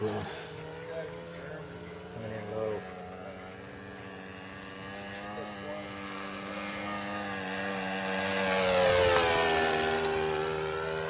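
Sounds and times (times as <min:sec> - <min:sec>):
model airplane engine passing: 0:00.0 - 0:11.0.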